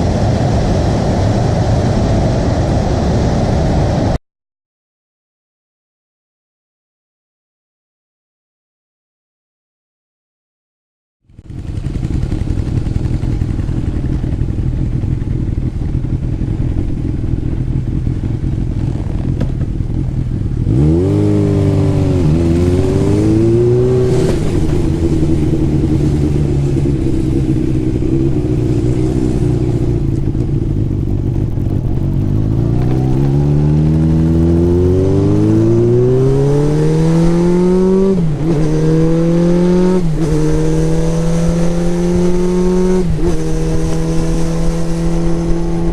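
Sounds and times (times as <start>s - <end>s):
motorcycle engine accelerating: 11.2s - 45.9s.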